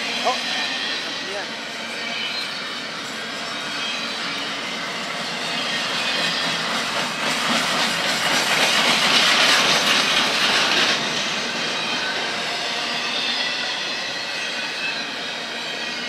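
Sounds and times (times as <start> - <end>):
freight train wheels rolling on rail: 0.0 - 16.0.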